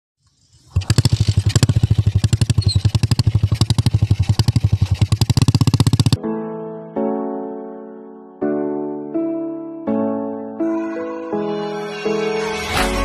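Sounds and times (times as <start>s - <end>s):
motorcycle engine running: 0.2s - 6.2s.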